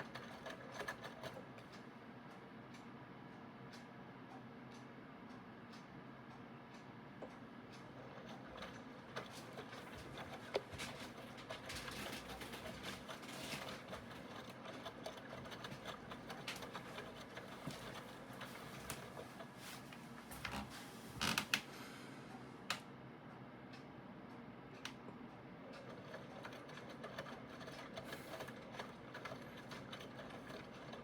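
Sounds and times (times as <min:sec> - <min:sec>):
washing machine clattering: 0:08.0 - 0:21.6.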